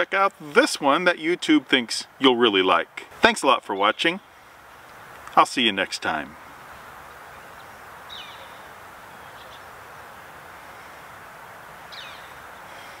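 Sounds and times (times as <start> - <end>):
steady background hiss: 0.0 - 13.0
small bird chirping: 6.6 - 9.7, 11.9 - 12.7.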